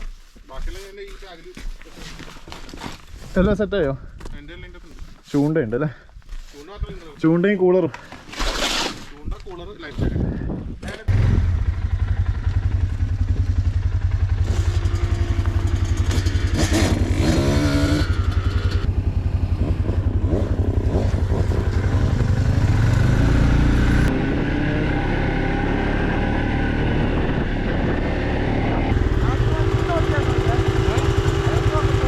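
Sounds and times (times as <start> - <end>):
small engine idling: 11.4 - 16.6.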